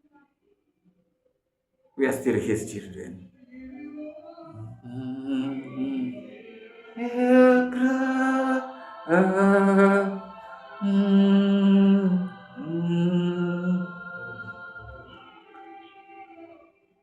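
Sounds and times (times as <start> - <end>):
person singing long held notes: 3.6 - 16.6.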